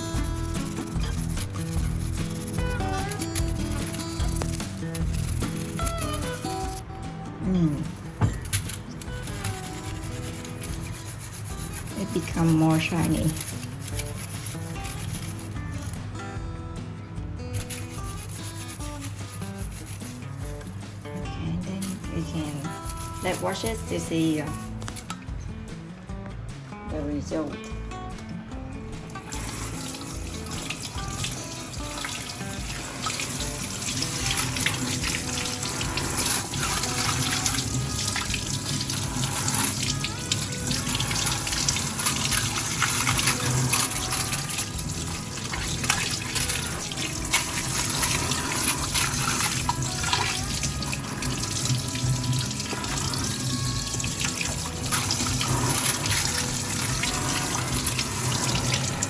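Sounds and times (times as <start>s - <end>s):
tap water running into sink: 0.0s - 6.9s, 7.8s - 15.7s, 29.1s - 59.0s
knocks and clatters: 7.8s - 12.4s.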